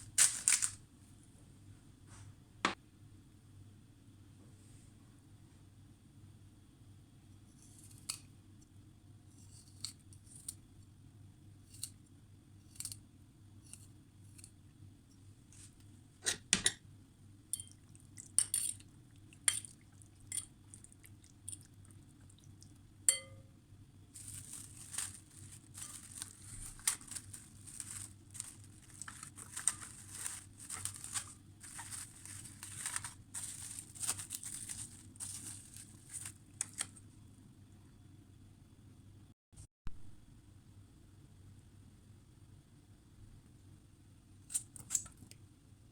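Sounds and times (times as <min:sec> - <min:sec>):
crackling and rustling: 0:00.0 - 0:00.8, 0:24.1 - 0:37.1.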